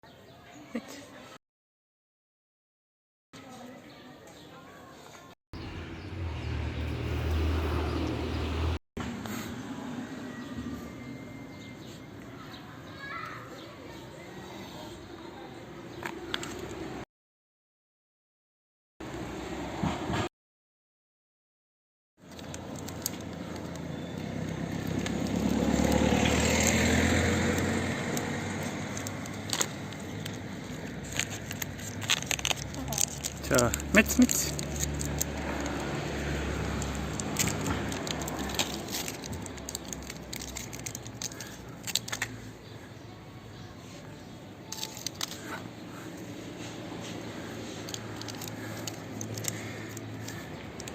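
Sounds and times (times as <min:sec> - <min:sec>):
car passing by: 0:05.6 - 0:11.0, 0:19.2 - 0:20.3, 0:24.1 - 0:29.8, 0:33.5 - 0:41.0
vehicle engine rumbling: 0:05.6 - 0:12.2, 0:22.2 - 0:50.9.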